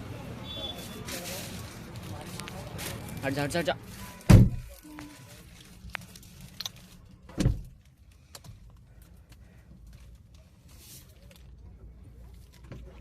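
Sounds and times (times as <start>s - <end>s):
car door shutting thud: 4.3s - 4.7s.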